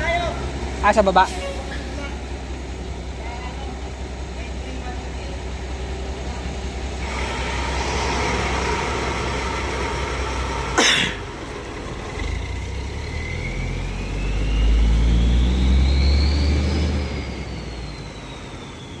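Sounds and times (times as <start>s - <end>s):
heavy truck engine rumbling: 0.0s - 19.0s
rising whine: 6.4s - 19.0s.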